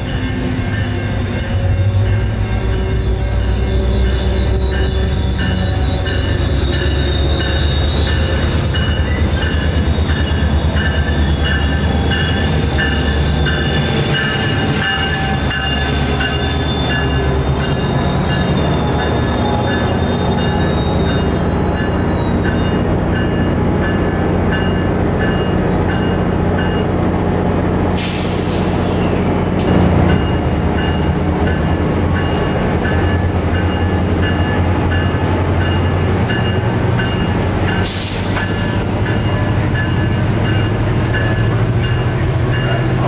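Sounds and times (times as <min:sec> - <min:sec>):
high ringing tone: 0:00.0 - 0:26.8
diesel train engine rumbling: 0:00.0 - 0:43.0.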